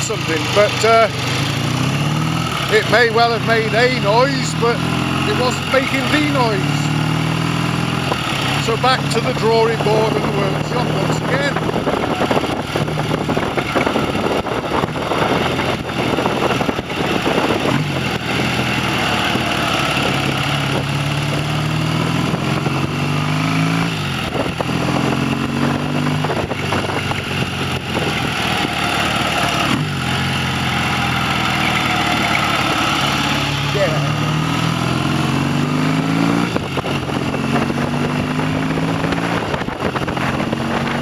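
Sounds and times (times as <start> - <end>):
motorcycle engine accelerating: 0.0 - 41.0.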